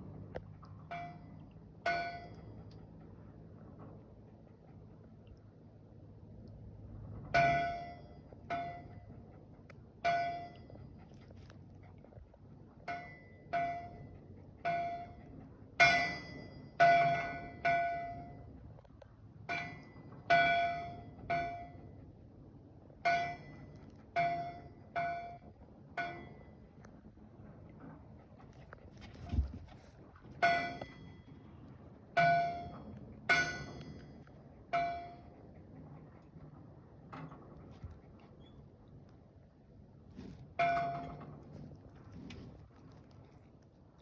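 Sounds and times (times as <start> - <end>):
bell buoy clanging: 0.9 - 3.0, 7.3 - 11.2, 12.8 - 18.6, 19.4 - 22.0, 23.0 - 26.8, 28.9 - 35.6, 40.2 - 41.8.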